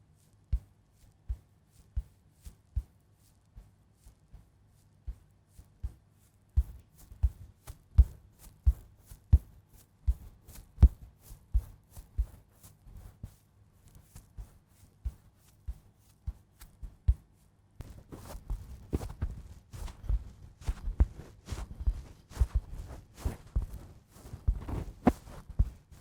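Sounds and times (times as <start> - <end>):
quiet handling sounds: 13.8 - 26.0
soft tapping: 17.8 - 26.0.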